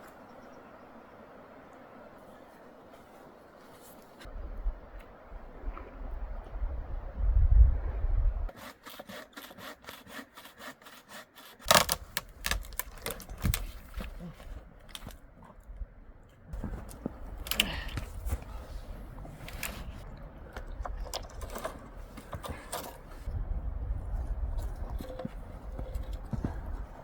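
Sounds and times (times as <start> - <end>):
wind rumbling on microphone: 4.2 - 8.5, 12.3 - 27.0
hand saw cutting wood: 8.5 - 13.2.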